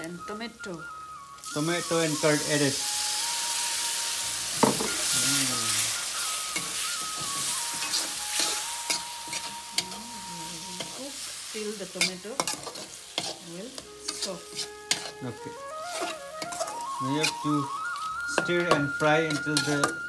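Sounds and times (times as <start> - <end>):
food sizzling in hot oil: 0.0 - 20.0
steel spatula scraping pan: 4.6 - 10.1, 12.0 - 20.0.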